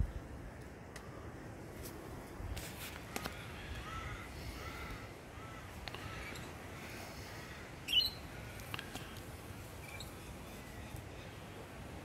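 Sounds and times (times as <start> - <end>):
birds calling: 2.9 - 11.8
sharp bird chirp: 7.9 - 8.2.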